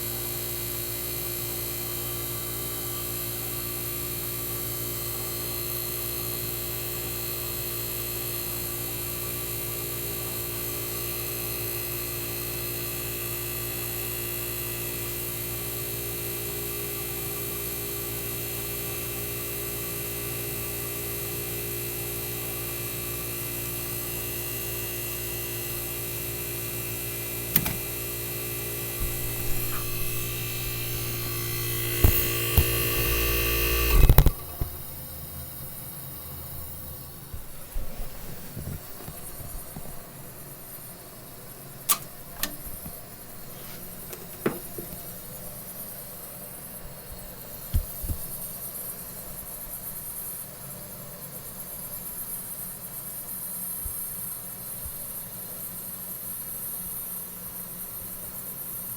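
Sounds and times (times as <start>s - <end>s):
air conditioner compressor humming: 0.0s - 52.6s
click: 27.5s - 28.0s, 33.8s - 34.8s, 41.9s - 43.0s.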